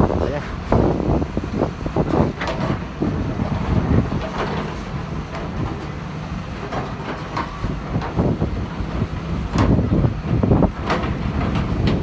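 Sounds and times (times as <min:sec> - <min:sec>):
diesel engine running: 0:00.0 - 0:12.0
metal clanks and knocks: 0:02.0 - 0:06.0, 0:06.6 - 0:12.0.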